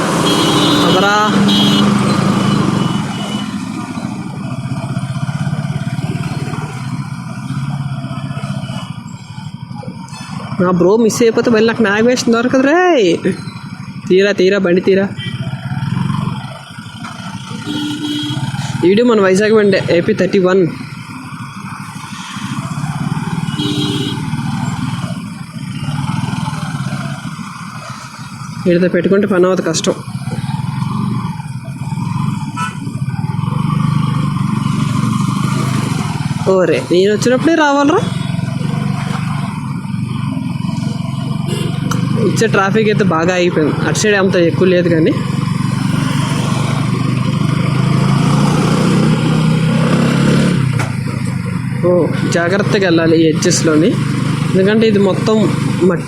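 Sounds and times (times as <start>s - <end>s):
motorcycle engine idling low: 0.2s - 45.8s
brief tone: 1.5s - 4.1s, 15.2s - 15.5s.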